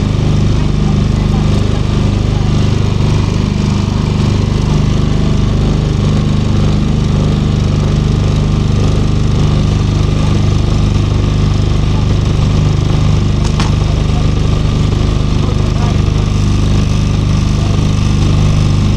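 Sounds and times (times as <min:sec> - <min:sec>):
boat engine humming: 0:00.0 - 0:18.9.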